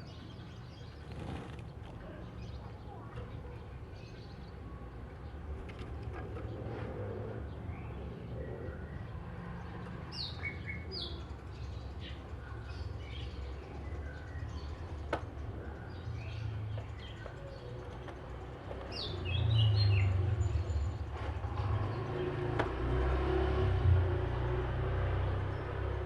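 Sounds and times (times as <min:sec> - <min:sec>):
low traffic rumble: 0:00.0 - 0:26.0
vehicle passing: 0:19.2 - 0:26.0.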